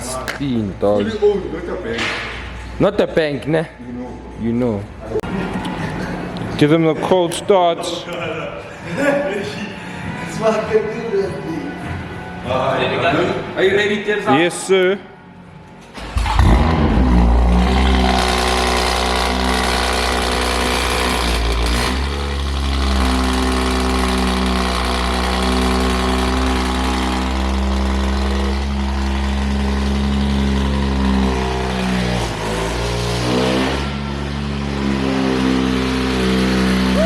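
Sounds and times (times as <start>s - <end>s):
car engine idling: 16.0s - 33.0s.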